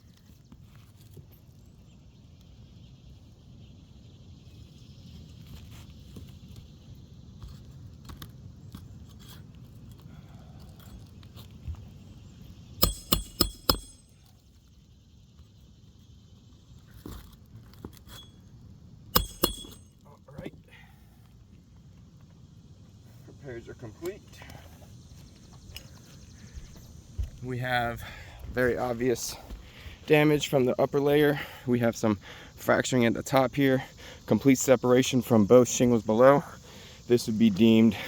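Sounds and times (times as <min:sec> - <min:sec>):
hammer striking nails: 0:12.8 - 0:14.1, 0:19.2 - 0:19.9.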